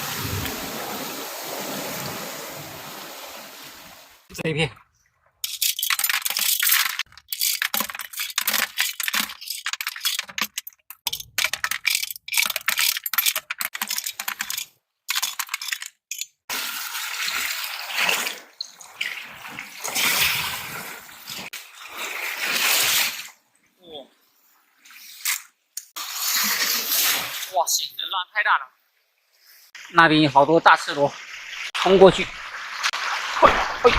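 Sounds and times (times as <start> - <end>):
waves breaking: 0.0 - 4.3, 30.8 - 33.9
shells and stones clattering: 5.4 - 16.4.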